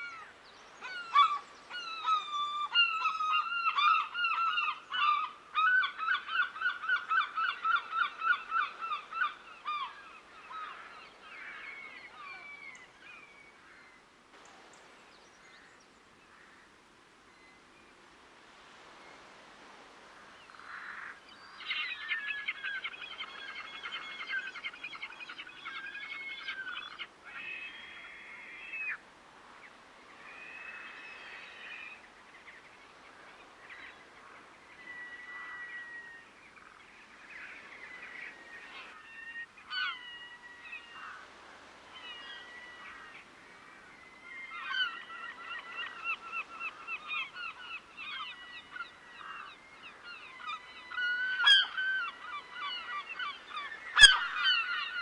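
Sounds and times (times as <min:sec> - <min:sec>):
waterbirds honking: 0:44.4 - 0:55.0.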